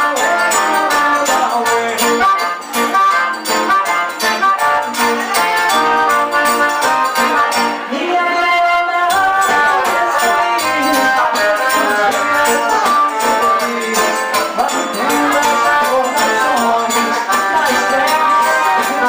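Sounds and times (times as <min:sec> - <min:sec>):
accordion melody: 0:00.0 - 0:19.0
guitar: 0:00.0 - 0:19.0
hand percussion: 0:00.0 - 0:19.0
zabumba drum beat: 0:00.0 - 0:19.0.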